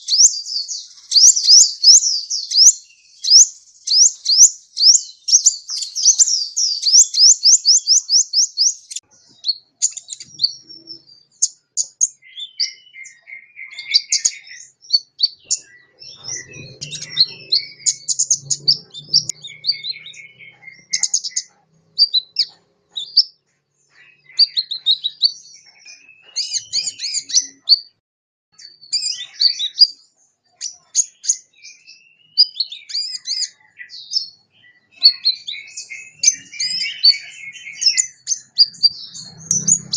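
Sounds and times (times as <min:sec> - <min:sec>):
sunbird singing: 0:00.0 - 0:28.0, 0:28.6 - 0:39.9.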